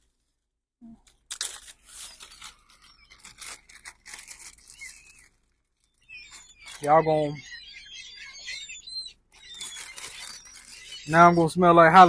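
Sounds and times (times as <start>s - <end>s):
food packaging crinkling: 1.1s - 6.9s, 9.3s - 11.1s.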